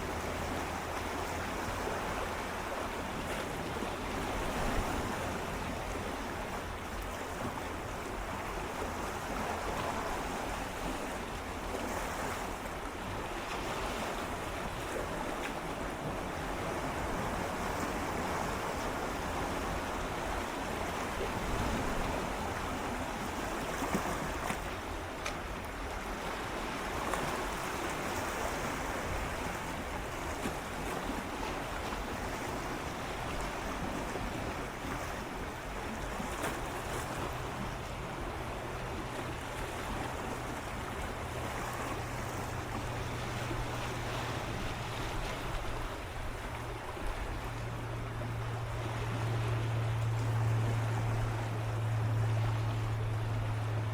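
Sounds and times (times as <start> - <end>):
sea waves lapping on rocks: 0.0 - 53.9
low steady hum: 28.3 - 53.9.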